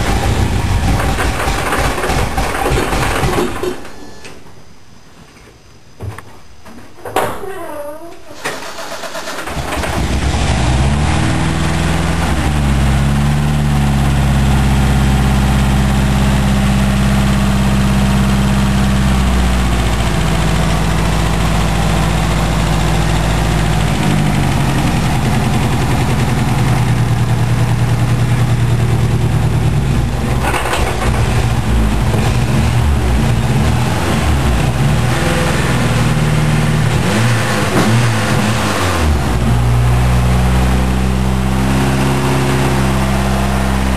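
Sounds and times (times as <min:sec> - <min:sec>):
car engine idling roughly: 0:00.0 - 0:03.6, 0:14.0 - 0:34.8.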